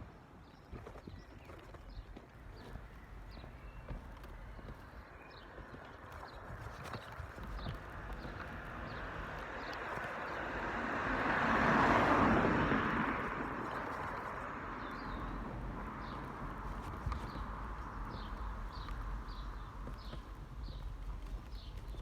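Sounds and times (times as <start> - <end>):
car passing by: 8.2 - 20.2.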